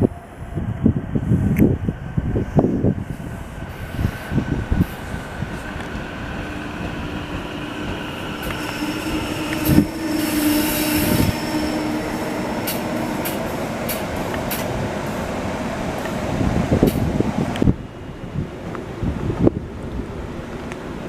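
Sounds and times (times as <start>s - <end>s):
electric train humming past: 0.0s - 21.0s
wheels clicking over rail joints: 4.7s - 17.7s.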